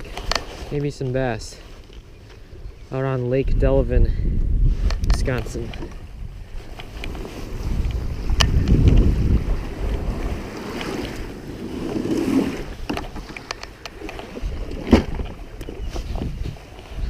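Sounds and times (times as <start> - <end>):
wind buffeting microphone: 0.0 - 17.0
paddle splashes: 7.1 - 17.0.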